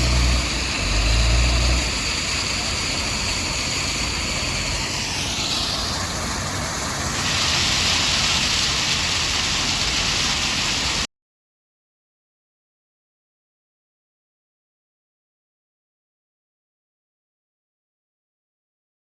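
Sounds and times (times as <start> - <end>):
heavy machinery running: 0.0 - 7.4.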